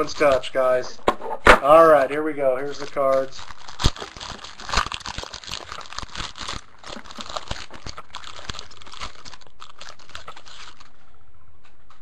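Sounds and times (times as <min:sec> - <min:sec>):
plastic packaging crinkling: 0:00.0 - 0:00.8, 0:01.8 - 0:11.2.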